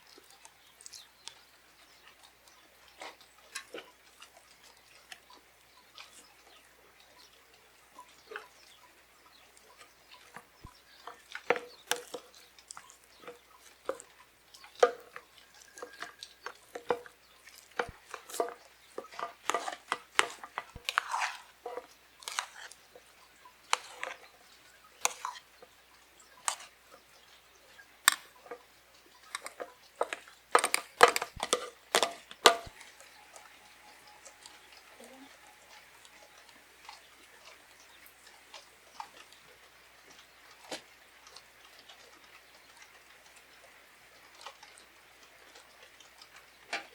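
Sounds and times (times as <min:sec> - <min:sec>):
objects knocking and clinking: 0:29.4 - 0:32.9.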